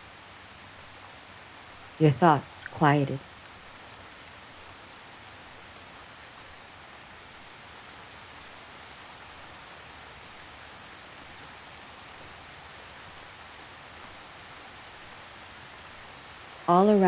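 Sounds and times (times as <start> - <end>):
gentle rain patter: 0.0 - 17.0.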